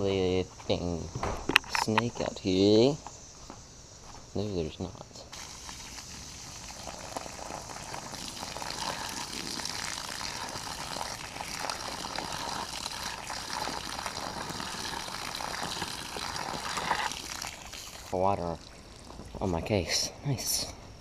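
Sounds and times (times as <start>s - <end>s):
water splashing: 5.3s - 19.7s
water filling a container: 5.3s - 19.8s.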